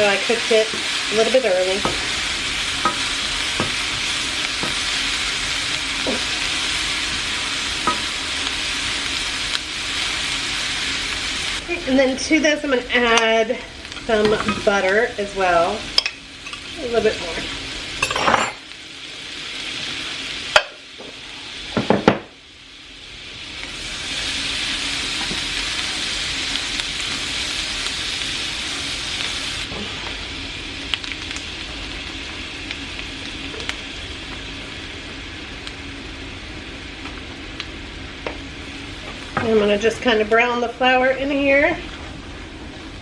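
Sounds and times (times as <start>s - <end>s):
butter sizzling in a pan: 0.0s - 43.0s.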